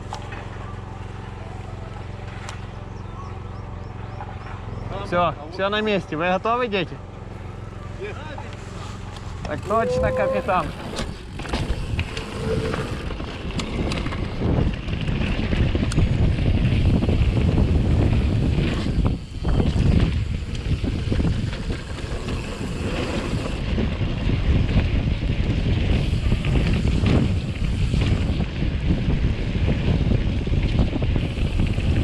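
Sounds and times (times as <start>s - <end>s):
bike rattling over rough trail: 0.0s - 32.0s
wind buffeting microphone: 9.3s - 32.0s.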